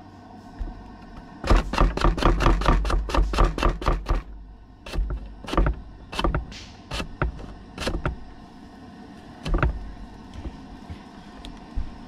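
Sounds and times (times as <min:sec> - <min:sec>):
grater thumping on wooden board: 0:01.5 - 0:04.2.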